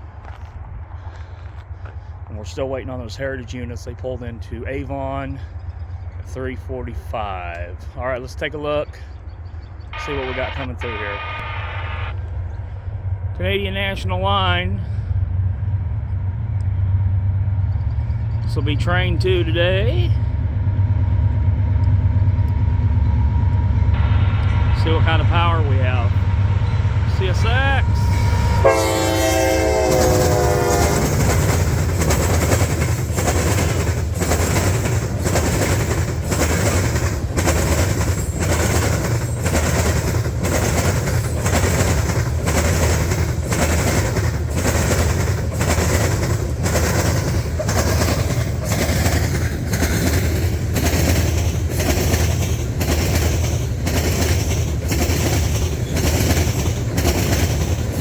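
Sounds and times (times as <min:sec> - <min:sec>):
train rumble: 0:00.0 - 0:58.0
locomotive horn: 0:09.9 - 0:12.4, 0:23.9 - 0:31.5
wheels clacking over rail joints: 0:24.8 - 0:58.0.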